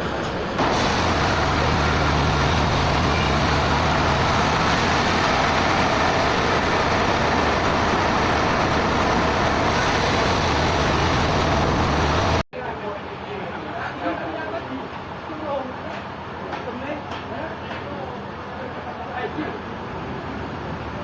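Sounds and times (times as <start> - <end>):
heavy engine running: 0.3 - 12.5
machine noise: 0.6 - 12.4.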